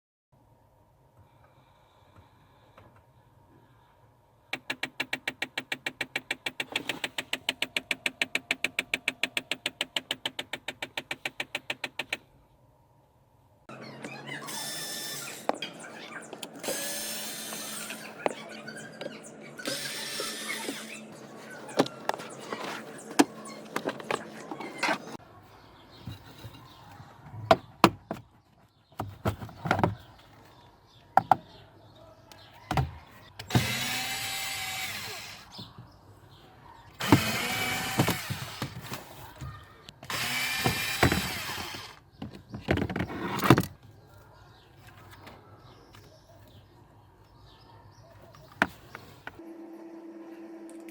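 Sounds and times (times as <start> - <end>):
tools clicking and knocking: 4.5 - 12.2
power drill whirring: 14.4 - 15.6, 16.6 - 18.2, 19.6 - 21.0, 33.5 - 35.6, 37.0 - 38.8, 40.0 - 42.0.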